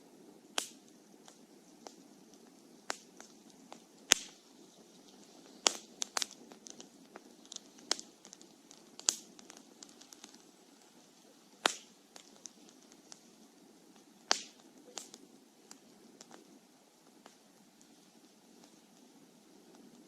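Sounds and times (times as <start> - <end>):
campfire crackling: 0.0 - 20.0
faint low hiss: 0.0 - 20.0
loud sharp pops: 0.6 - 4.4, 5.1 - 13.3, 14.0 - 16.5.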